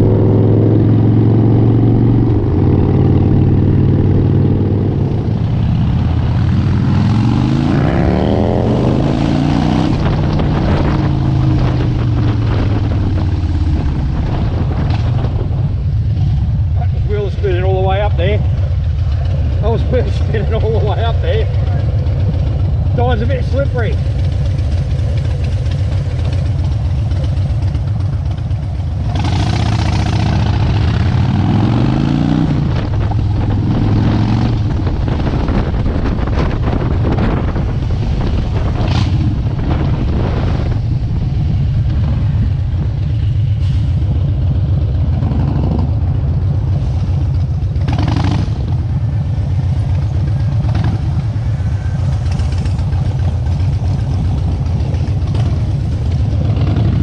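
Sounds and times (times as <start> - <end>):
motorcycle engine rumbling: 0.0 - 57.0.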